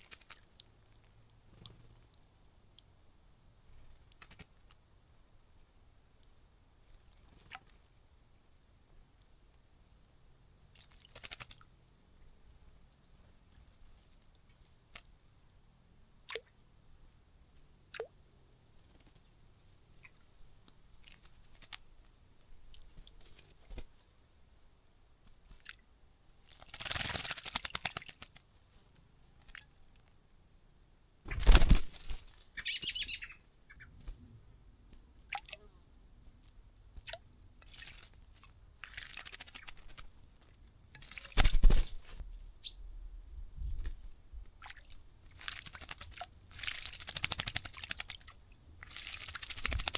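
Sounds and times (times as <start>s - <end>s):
birds splashing in water: 10.8s - 11.6s, 26.5s - 28.4s, 37.0s - 40.3s, 44.6s - 49.9s
faint bird chirps: 12.9s - 13.4s, 32.5s - 34.0s, 42.6s - 42.9s.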